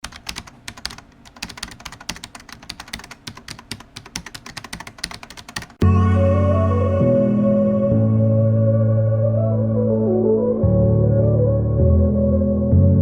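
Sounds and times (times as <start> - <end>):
keyboard typing clicks: 0.0 - 5.8
synthesizer chord music: 5.8 - 13.0.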